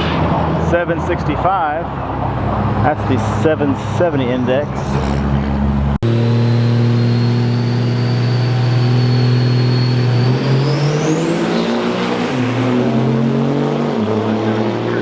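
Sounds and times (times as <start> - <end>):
truck engine at high revs: 0.0 - 15.0
turbo whine: 5.0 - 13.4.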